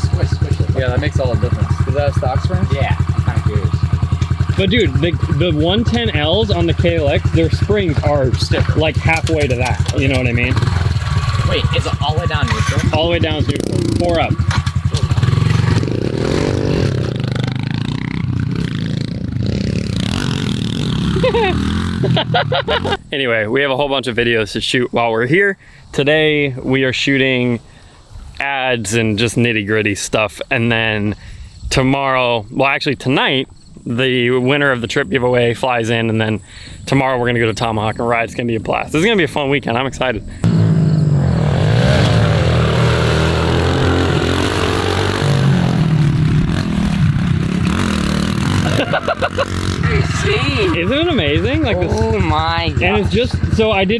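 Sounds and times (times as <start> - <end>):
pit bike engine revving: 0.0 - 23.1, 40.3 - 53.9.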